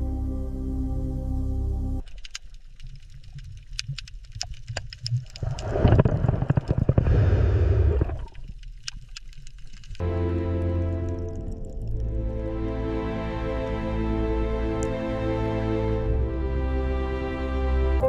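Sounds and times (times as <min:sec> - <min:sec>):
background music: 0:00.0 - 0:02.0, 0:10.0 - 0:18.0
rush of water: 0:02.2 - 0:10.0
low underwater rumble: 0:02.9 - 0:08.8, 0:09.5 - 0:16.8.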